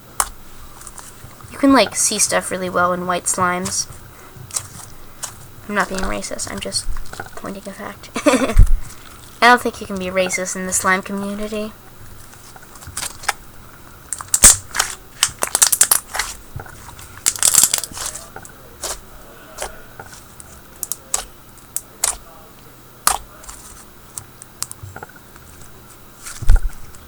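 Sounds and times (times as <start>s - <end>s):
slime squishing clicks and pops: 22.0s - 22.2s, 23.0s - 23.2s.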